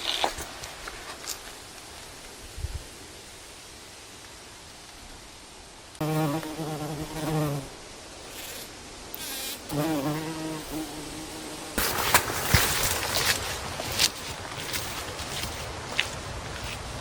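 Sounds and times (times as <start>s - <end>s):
flying insect buzzing: 6.0s - 16.2s.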